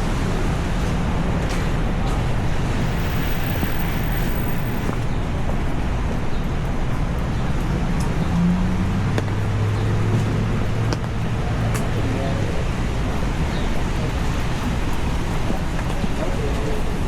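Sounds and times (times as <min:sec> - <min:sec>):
traffic rumbling: 0:00.2 - 0:05.4.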